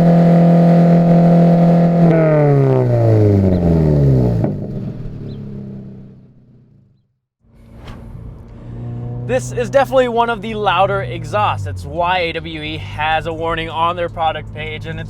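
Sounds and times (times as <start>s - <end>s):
car engine and exhaust: 0.0s - 15.0s.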